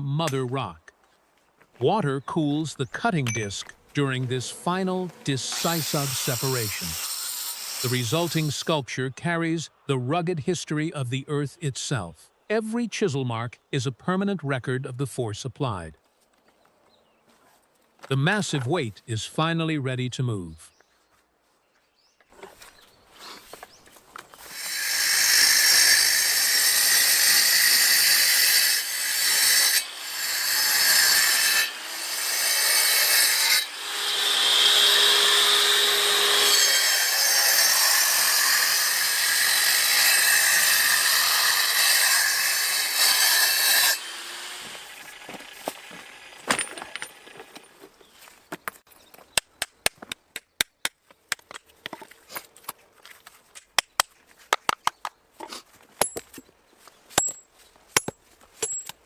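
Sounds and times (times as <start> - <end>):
power tool cutting: 5.2 - 8.6, 24.5 - 47.1
sharp clicks and taps: 48.6 - 52.1, 53.5 - 55.2.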